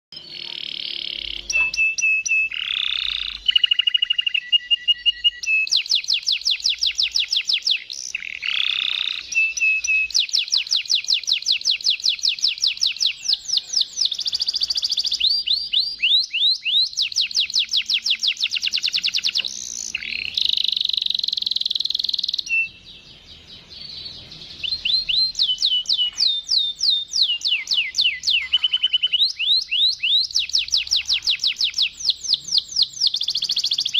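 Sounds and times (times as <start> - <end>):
canary singing trills: 0.1 - 33.9.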